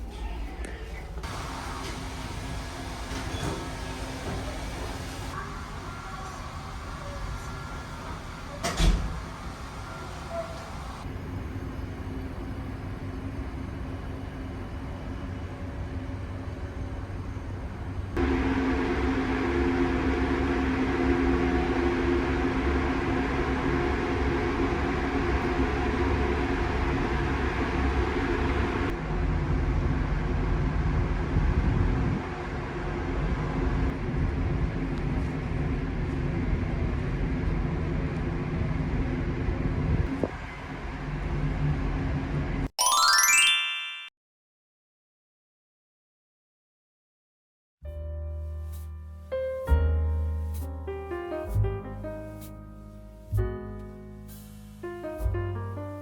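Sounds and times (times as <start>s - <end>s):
ship engines droning: 0.4s - 29.0s.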